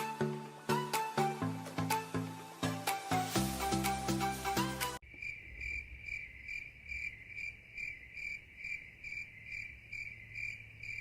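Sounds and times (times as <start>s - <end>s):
cricket chirping: 5.0s - 11.0s.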